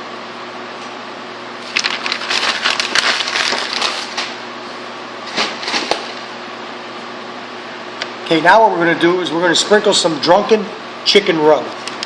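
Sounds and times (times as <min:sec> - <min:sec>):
steady hum: 0:00.0 - 0:12.0
crackling handling noise: 0:01.6 - 0:04.4.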